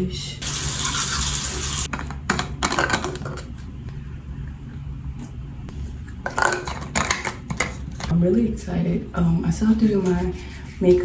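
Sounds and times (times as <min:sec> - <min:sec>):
low steady hum: 0:00.0 - 0:11.0
tap water running: 0:00.4 - 0:01.9.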